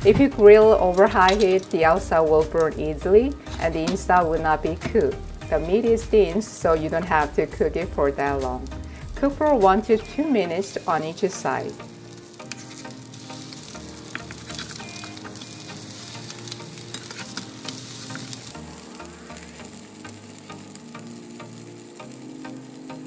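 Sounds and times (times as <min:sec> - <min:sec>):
meat sizzling in oil: 0:00.0 - 0:23.0
spatulas scraping a pan: 0:03.3 - 0:04.5, 0:12.1 - 0:18.5.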